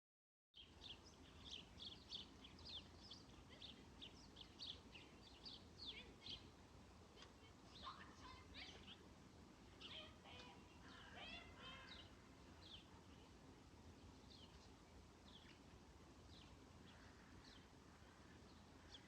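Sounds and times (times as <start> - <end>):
faint background hiss: 0.6 - 19.0
small birds chirping: 0.6 - 19.0.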